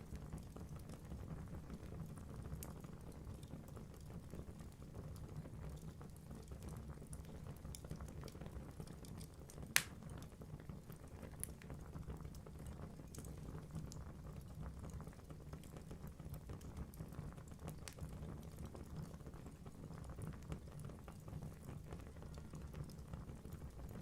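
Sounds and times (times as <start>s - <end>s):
log fire crackling: 0.0s - 24.0s
sharp fire pop: 9.8s - 10.0s.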